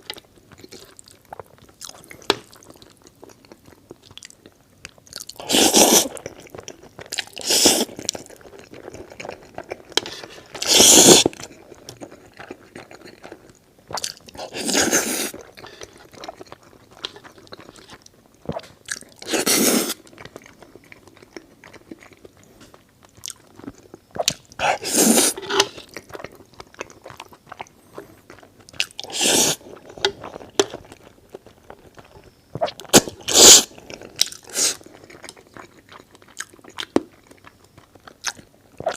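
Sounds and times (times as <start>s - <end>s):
chewing: 0.0s - 38.9s
noodle slurping: 5.4s - 6.2s, 10.0s - 11.3s, 14.4s - 15.4s, 19.2s - 20.0s, 24.6s - 25.8s, 29.0s - 29.8s, 32.8s - 33.8s.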